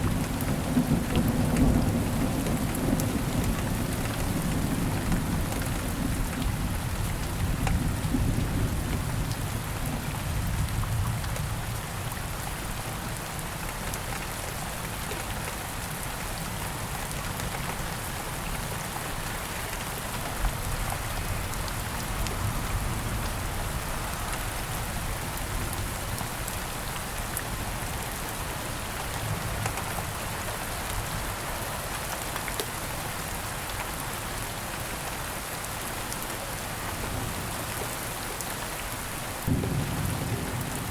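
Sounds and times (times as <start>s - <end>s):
rain falling in woods: 0.0s - 40.9s
distant thunder rumble: 39.4s - 40.9s.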